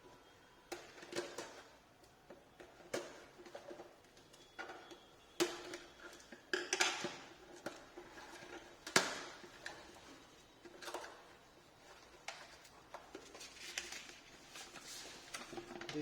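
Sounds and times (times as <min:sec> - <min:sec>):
card and paper rustling: 0:07.6 - 0:16.0.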